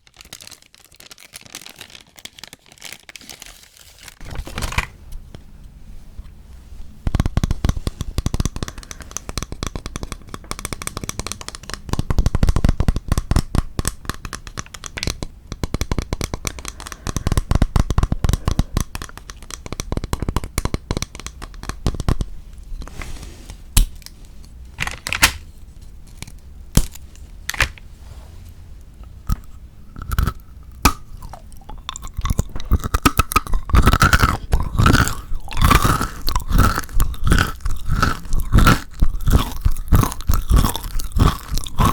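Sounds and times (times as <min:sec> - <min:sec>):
chewing and crunching chocolate: 0:07.2 - 0:22.2, 0:29.0 - 0:41.9.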